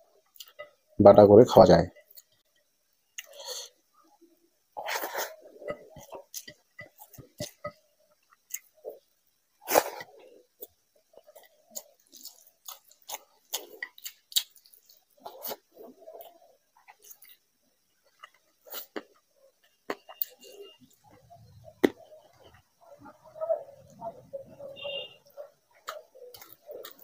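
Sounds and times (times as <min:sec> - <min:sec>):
wet chewing and lip smacks: 0:25.2 - 0:27.0.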